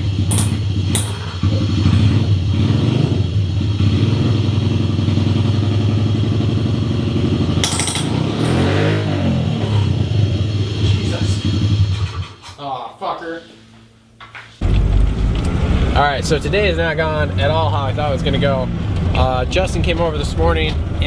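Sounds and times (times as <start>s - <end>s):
dirt bike engine running: 0.0s - 11.9s.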